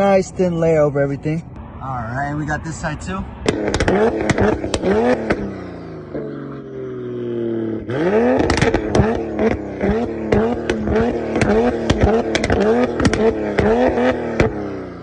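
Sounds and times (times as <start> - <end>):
car engine revving in blips: 3.3 - 15.0
exhaust pops and crackles: 3.4 - 5.5, 8.1 - 14.7.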